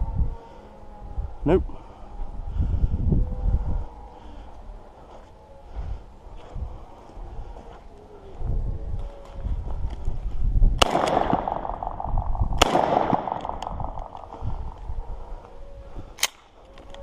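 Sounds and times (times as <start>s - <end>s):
shotgun shots with ringing echo: 10.8s - 14.7s.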